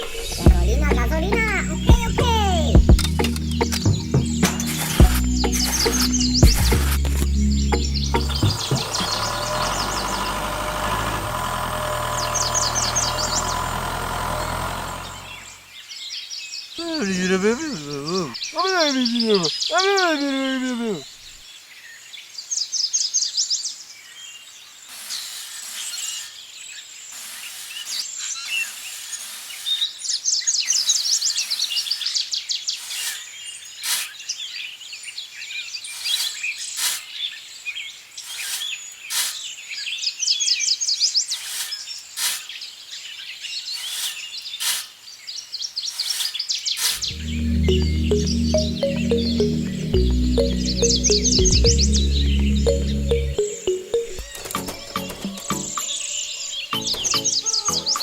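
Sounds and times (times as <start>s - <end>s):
birds chirping with high trills: 0.2s - 10.4s, 12.1s - 13.6s, 47.0s - 58.0s.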